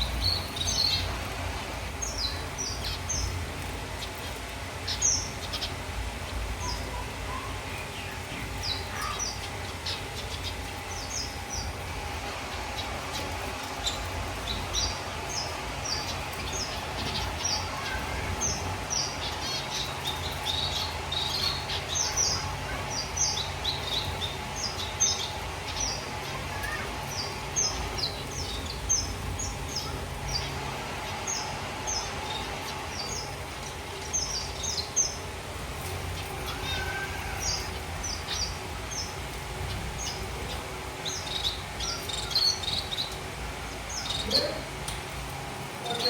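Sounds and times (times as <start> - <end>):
finches chirping: 0.0 - 44.9, 45.6 - 46.0
steady low hum: 0.0 - 46.0.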